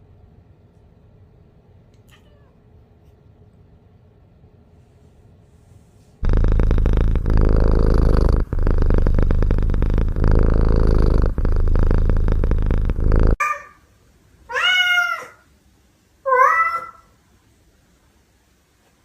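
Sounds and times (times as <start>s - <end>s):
cat meow: 2.0s - 2.6s, 14.5s - 15.5s, 16.3s - 17.1s
cat purring: 6.2s - 13.4s.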